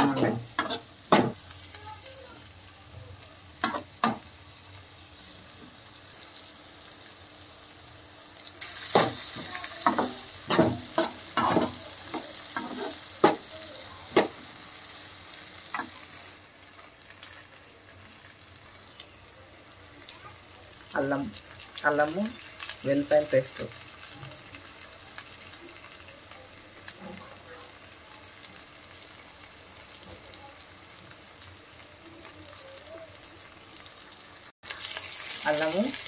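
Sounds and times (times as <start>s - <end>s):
onions sizzling in hot oil: 0.0s - 36.0s
spatula scraping and knocking pan: 8.9s - 13.5s.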